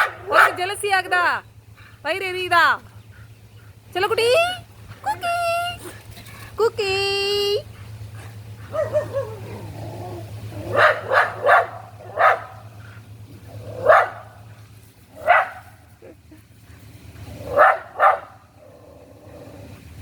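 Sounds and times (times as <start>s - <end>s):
dog barking sharply: 0.0s - 0.6s, 8.7s - 9.4s, 10.7s - 12.6s, 13.8s - 14.4s, 15.2s - 15.8s, 17.5s - 18.4s
dog whining: 8.7s - 11.2s.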